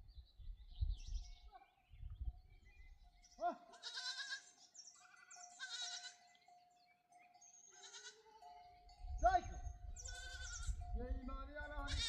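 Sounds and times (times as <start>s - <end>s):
sheep bleating: 3.5s - 6.3s, 7.7s - 8.5s, 10.0s - 10.8s.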